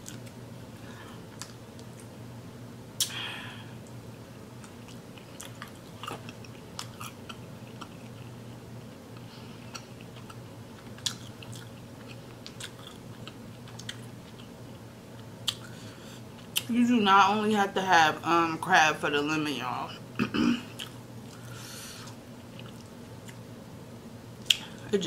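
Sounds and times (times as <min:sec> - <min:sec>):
person chewing: 0:00.0 - 0:00.3, 0:01.0 - 0:02.1, 0:04.6 - 0:16.7, 0:20.7 - 0:23.5
low steady hum: 0:00.0 - 0:25.0.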